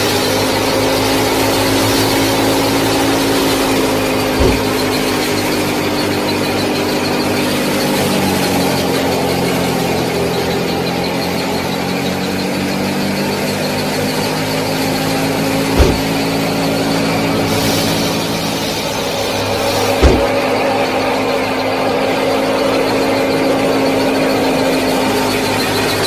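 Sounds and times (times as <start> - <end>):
small motor humming: 0.0 - 26.0
short thump: 4.4 - 5.0, 15.7 - 16.3, 19.8 - 20.5.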